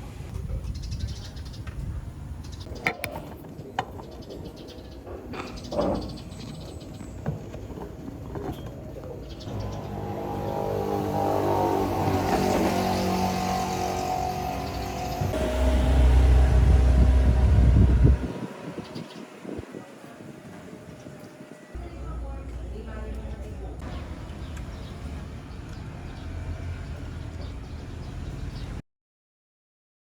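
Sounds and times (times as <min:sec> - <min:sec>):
engine hum: 0:01.6 - 0:28.8
low vehicle rumble: 0:04.9 - 0:28.8.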